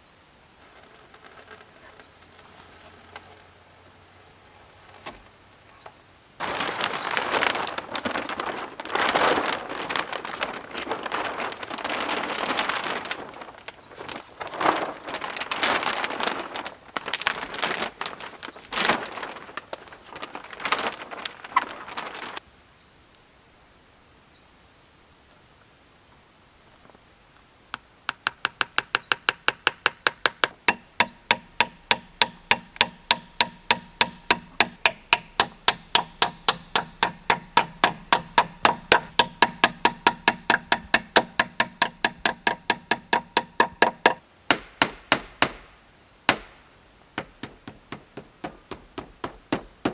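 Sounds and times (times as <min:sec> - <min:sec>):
brush crunching and rustling: 0:00.4 - 0:22.5, 0:30.3 - 0:49.9
blade chopping wood: 0:28.1 - 0:45.7, 0:46.3 - 0:46.6, 0:47.2 - 0:49.9.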